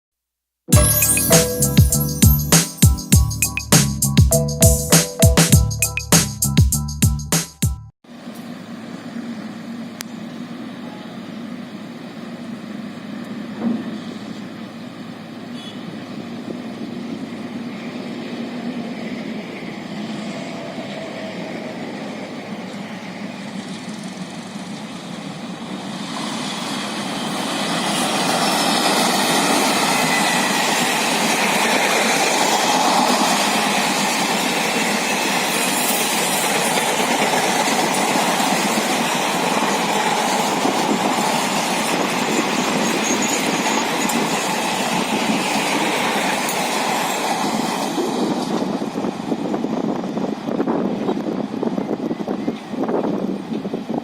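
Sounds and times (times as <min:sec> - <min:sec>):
train wheels rushing on rails: 0:09.2 - 0:54.0
train rumble: 0:12.0 - 0:54.0.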